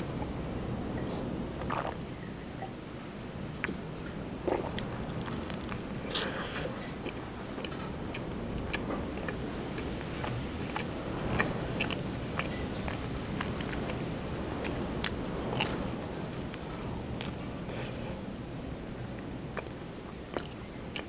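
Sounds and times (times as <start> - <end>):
mouth chewing wetly: 4.4 - 21.0.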